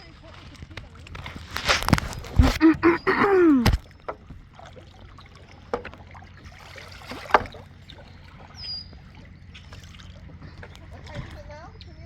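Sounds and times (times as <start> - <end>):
river water splashing and trickling: 0.0 - 12.0
person speaking: 1.6 - 3.8.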